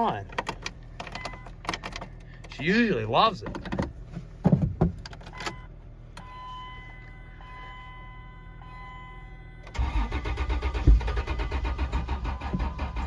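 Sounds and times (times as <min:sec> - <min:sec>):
fuel pump whine: 0:06.2 - 0:13.0.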